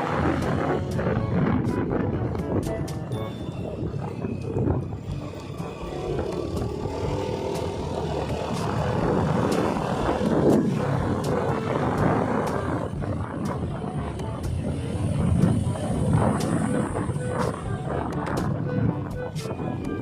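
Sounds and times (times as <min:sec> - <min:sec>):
motorcycle engine at road speed: 0:00.0 - 0:20.0
wind rushing over microphone: 0:00.0 - 0:20.0.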